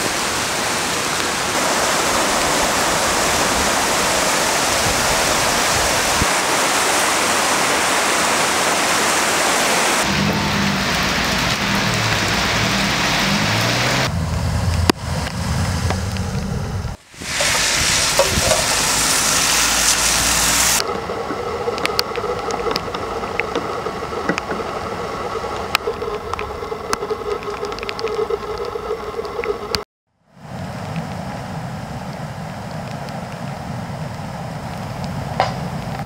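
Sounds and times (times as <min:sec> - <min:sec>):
rushing floodwater: 0:00.0 - 0:14.1, 0:17.0 - 0:36.0
heavy rain: 0:00.0 - 0:29.8
sharp patter and ticks: 0:20.8 - 0:29.8.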